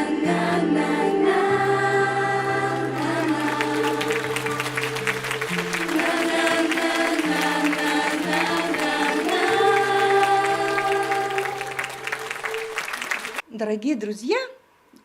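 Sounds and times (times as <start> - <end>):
voices singing held notes: 0.0 - 13.4
applause: 2.4 - 13.4.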